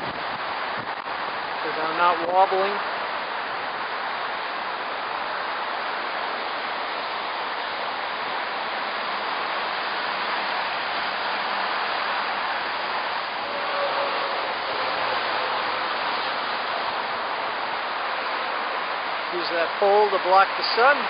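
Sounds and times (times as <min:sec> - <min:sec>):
wind rushing past microphone: 0:00.0 - 0:01.7.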